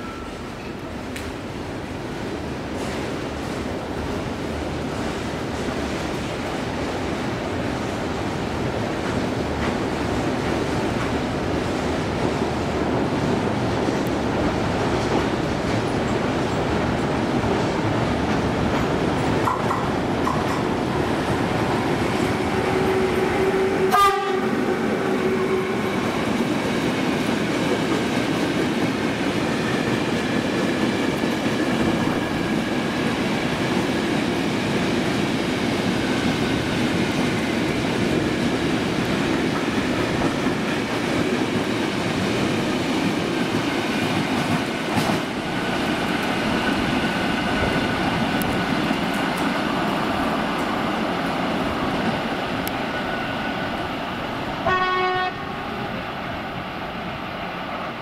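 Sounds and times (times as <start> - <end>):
train wagons rolling past: 0.0 - 58.0
locomotive horn blast: 22.4 - 25.8, 54.6 - 55.6.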